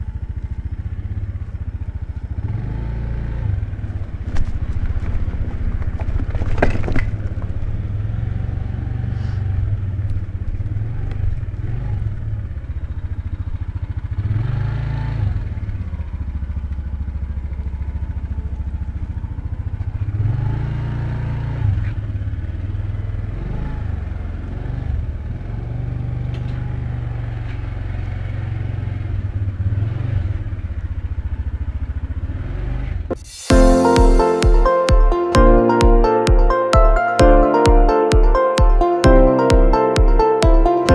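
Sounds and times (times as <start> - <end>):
motorcycle engine running: 0.0 - 40.9
electronic music: 33.1 - 40.9.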